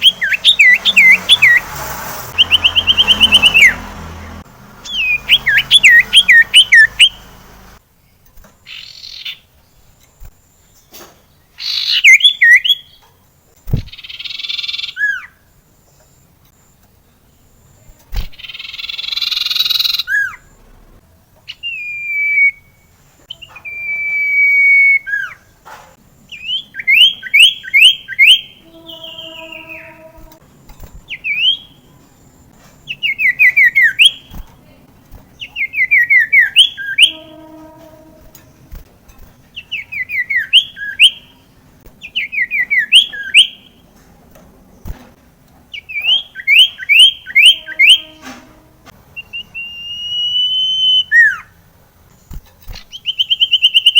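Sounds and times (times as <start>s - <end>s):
bird whistled notes: 2.4s - 3.9s, 4.9s - 7.3s, 26.4s - 30.4s, 35.4s - 38.3s, 45.8s - 48.4s, 49.2s - 51.5s
bird harsh rasping call: 27.3s - 30.4s, 35.7s - 38.6s, 46.0s - 48.6s
quick downward-sliding whistles: 49.2s - 51.4s.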